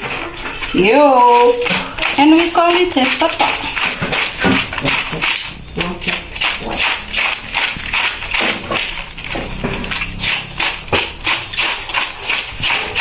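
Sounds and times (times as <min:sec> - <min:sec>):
knife chopping cabbage: 0:00.6 - 0:13.0.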